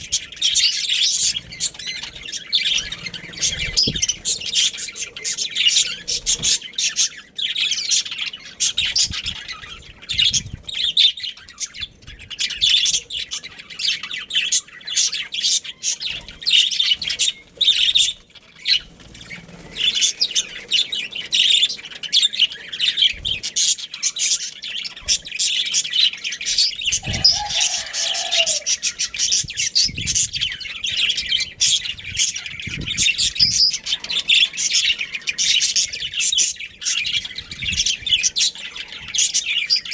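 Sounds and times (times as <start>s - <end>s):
budgerigars chirping and chattering: 0.0s - 39.9s
lower-pitched bird call: 26.8s - 35.3s.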